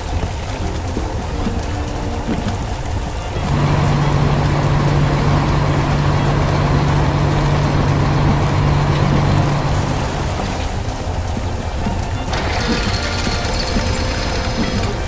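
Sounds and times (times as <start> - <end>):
heavy vehicle engine humming: 0.0 - 15.0.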